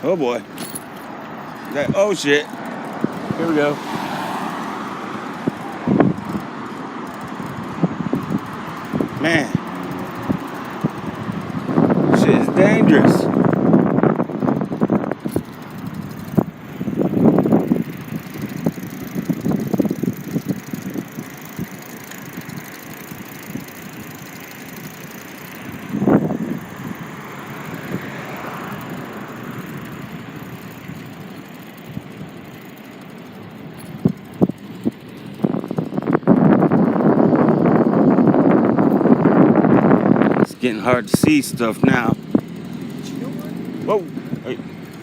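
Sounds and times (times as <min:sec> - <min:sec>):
street traffic noise: 0:00.0 - 0:45.0
sharp knocks and rattles: 0:00.4 - 0:03.4
car passing by: 0:03.2 - 0:06.0.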